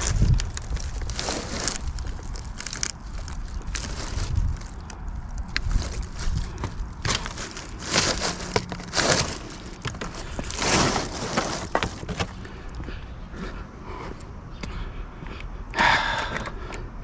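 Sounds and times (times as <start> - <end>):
rustling and scraping of items: 0.0 - 13.5.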